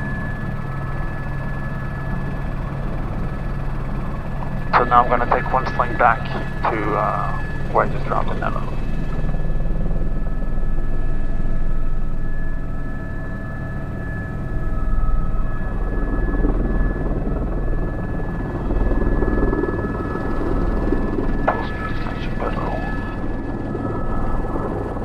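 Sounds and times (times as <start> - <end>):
helicopter rotor drone: 0.0 - 25.0
high turbine whine: 2.0 - 25.0.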